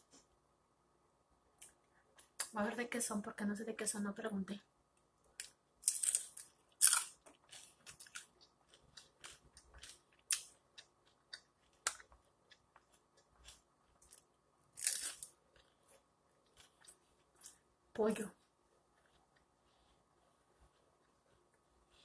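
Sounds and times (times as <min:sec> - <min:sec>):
chewing with mouth clicks: 0:05.3 - 0:17.6
crunchy bites of fried food: 0:05.3 - 0:17.6.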